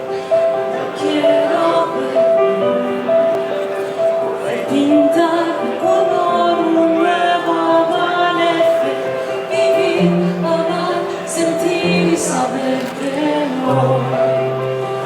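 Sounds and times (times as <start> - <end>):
held keyboard chords: 0.0 - 15.0
woman singing: 0.8 - 3.0, 4.4 - 15.0.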